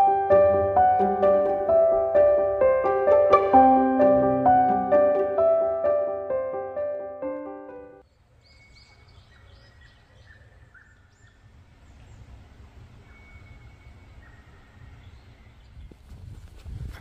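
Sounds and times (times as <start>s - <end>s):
small birds chirping: 8.0s - 16.1s
thin whistled bird notes: 8.1s - 11.4s, 13.0s - 15.8s.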